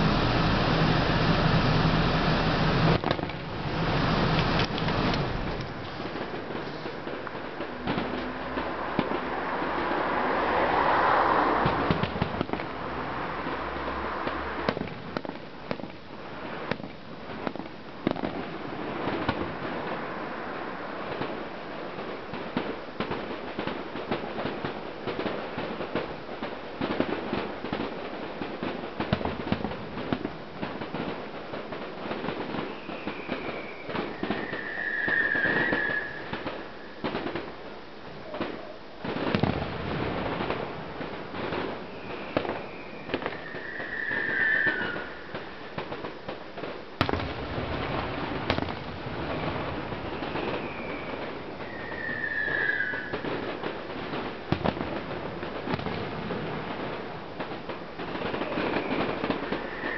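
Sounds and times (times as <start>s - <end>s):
firework whistle: 0.0s - 12.5s, 32.2s - 37.5s, 41.4s - 46.0s, 47.0s - 53.8s, 58.2s - 59.9s
fireworks bangs and crackles: 0.0s - 59.9s.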